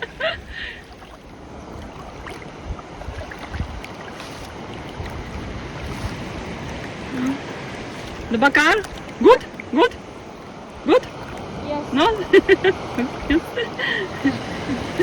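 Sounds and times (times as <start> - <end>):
sea noise: 0.0 - 15.0
wind: 0.0 - 15.0
wind bumps on microphone: 1.6 - 7.1.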